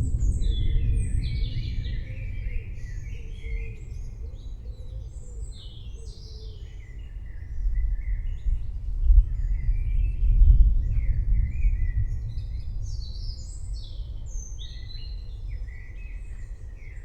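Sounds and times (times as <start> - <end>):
thunder rumbling: 0.0 - 4.6, 7.8 - 15.6
birds chirping and singing: 0.1 - 8.6.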